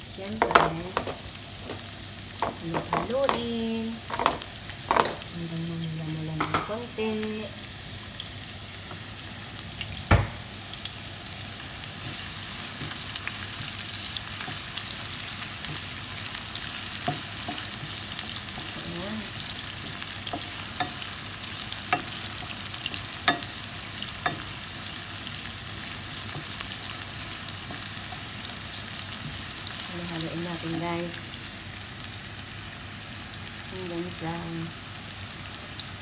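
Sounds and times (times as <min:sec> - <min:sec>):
onions sizzling in hot oil: 0:00.0 - 0:36.0
utensil knocking against pan: 0:00.4 - 0:01.8, 0:02.4 - 0:03.5.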